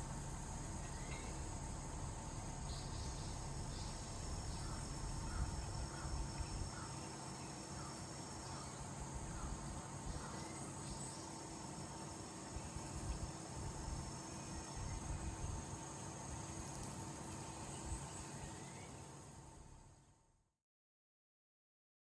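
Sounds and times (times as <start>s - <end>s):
faint low rumble: 0.0s - 6.9s
crickets trilling: 0.0s - 20.0s.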